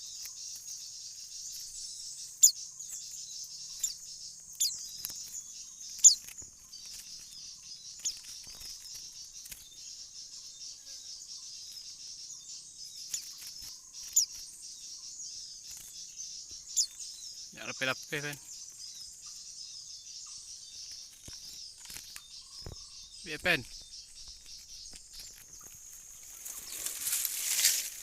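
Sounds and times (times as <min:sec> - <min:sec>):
sharp bird chirps: 0:00.0 - 0:28.0.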